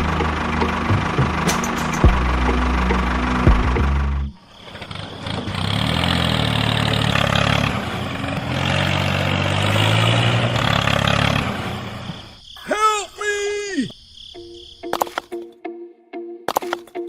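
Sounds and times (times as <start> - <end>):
engine running: 0.0 - 12.4.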